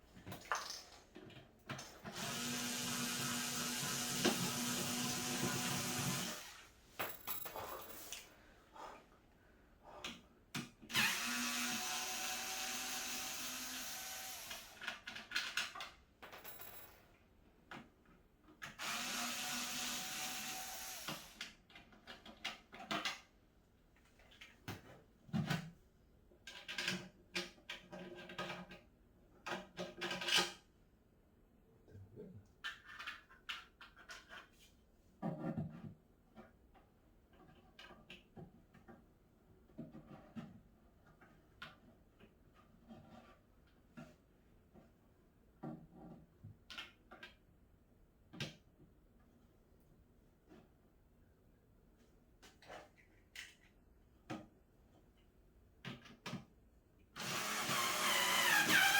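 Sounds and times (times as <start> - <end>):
electric drill-driver running: 2.2 - 6.6, 10.9 - 14.8, 18.8 - 21.2, 57.2 - 58.9
knocks and clatter of parts: 7.0 - 8.3.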